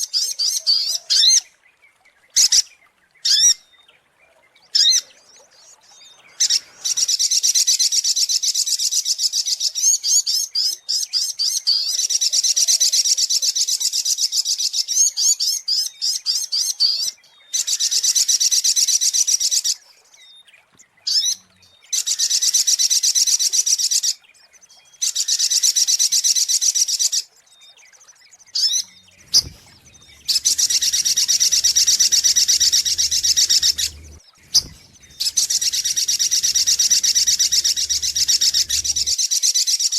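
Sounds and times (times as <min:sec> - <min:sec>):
bird singing high chipping notes: 0:28.3 - 0:39.2.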